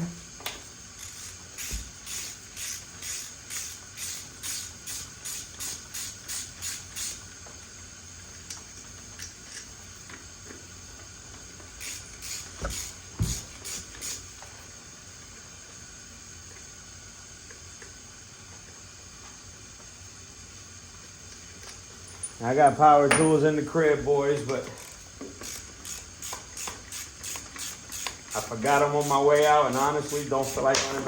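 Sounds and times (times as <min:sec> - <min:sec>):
hand ratchet clicking: 0:01.0 - 0:07.3, 0:11.8 - 0:14.3, 0:24.4 - 0:31.0.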